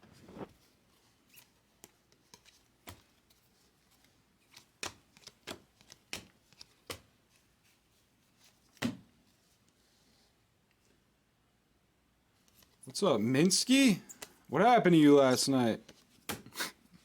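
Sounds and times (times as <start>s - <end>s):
cards clicking and snapping: 4.5s - 7.1s.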